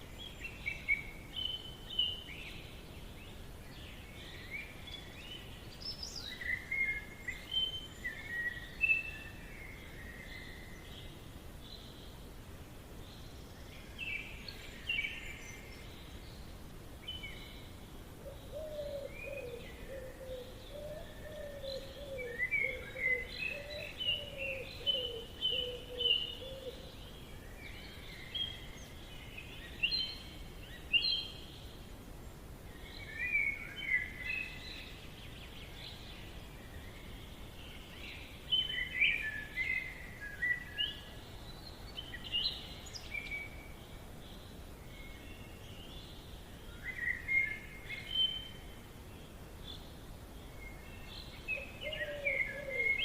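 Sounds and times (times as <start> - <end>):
faint steady background hiss: 0.0 - 53.0
birds chirping and trilling: 13.0 - 32.0, 32.7 - 53.0.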